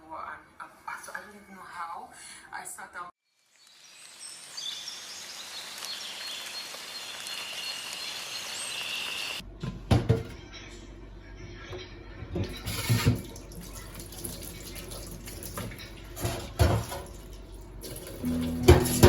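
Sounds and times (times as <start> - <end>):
faint hiss: 3.3 - 9.4
soft music: 18.1 - 19.0.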